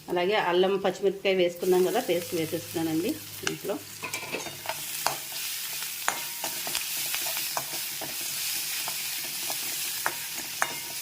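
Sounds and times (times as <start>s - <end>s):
spices sizzling in hot oil: 0.0s - 11.0s
spoon scraping against pan: 3.4s - 11.0s.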